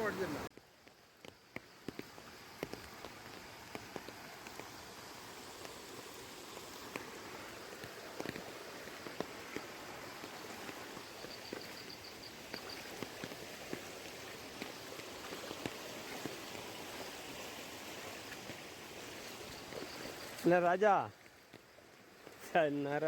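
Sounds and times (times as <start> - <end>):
floodwater rushing: 0.0 - 0.5, 1.8 - 23.0
small splashes and drips: 6.4 - 20.5.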